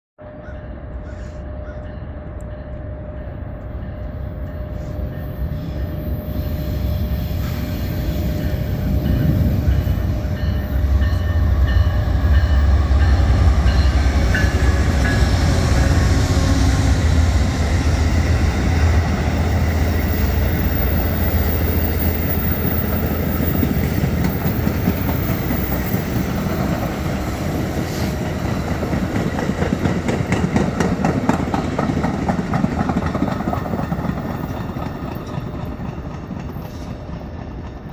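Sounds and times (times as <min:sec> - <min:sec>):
wheels rushing on rail: 0:00.2 - 0:37.9
locomotive rumbling: 0:00.3 - 0:37.9
rhythmic clickety-clack of wheels: 0:20.4 - 0:37.9.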